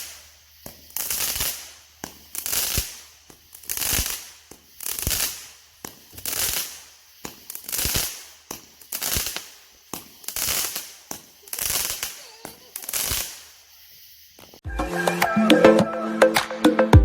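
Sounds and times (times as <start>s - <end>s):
firework launch thumps: 0.0s - 13.6s
firework hissing bursts: 0.0s - 14.6s.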